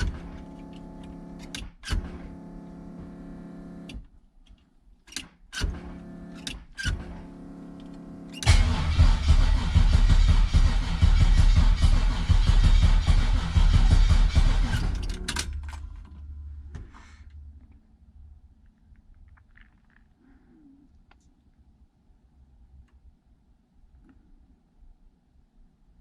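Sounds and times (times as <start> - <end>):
engine starter cranking: 0.0 - 4.0, 5.1 - 16.3
steady hum: 0.0 - 4.0, 5.7 - 18.7.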